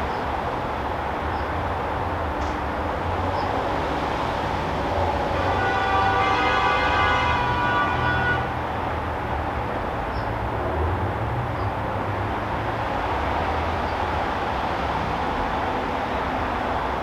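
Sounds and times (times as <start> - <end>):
many-toned horn blast: 5.3 - 8.6.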